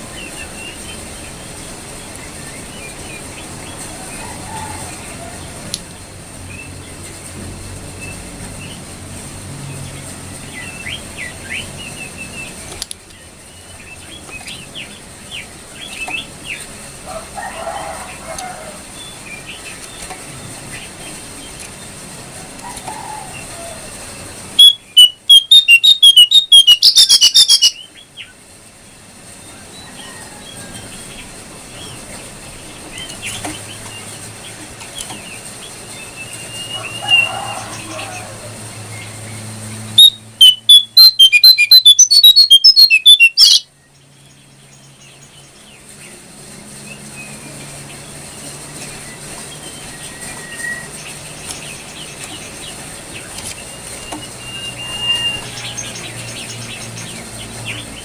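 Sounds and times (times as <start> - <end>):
bird chirping and whistling: 24.6 - 27.9, 40.0 - 43.7, 54.0 - 56.0
songbird chirping: 24.6 - 28.4, 32.7 - 45.8.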